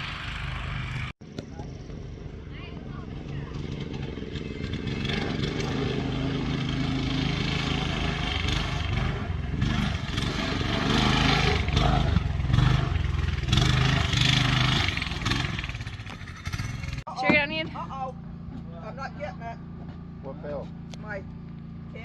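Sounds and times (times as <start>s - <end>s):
engine running and revving: 0.0s - 17.1s.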